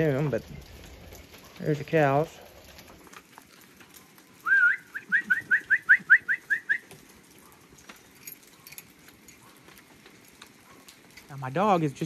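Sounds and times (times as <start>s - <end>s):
songbird whistling: 4.4s - 6.9s.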